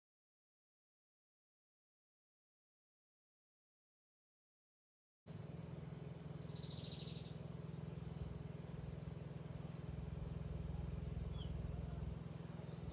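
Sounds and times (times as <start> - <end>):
low hum: 5.3 - 12.9
bird calling: 6.2 - 7.4
bird chirp: 6.2 - 7.4, 8.2 - 9.0, 11.2 - 12.0.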